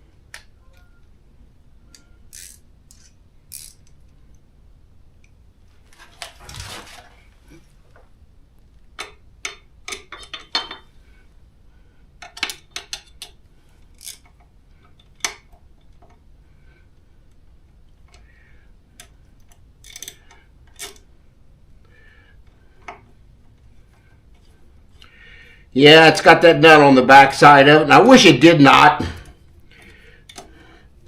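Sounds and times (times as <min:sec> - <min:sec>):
socket wrench metallic clicks: 0:01.9 - 0:04.0.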